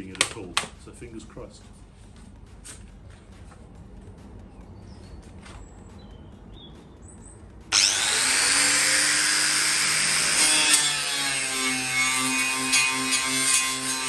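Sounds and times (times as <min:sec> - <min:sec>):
power tool disc whine: 0:07.7 - 0:14.0.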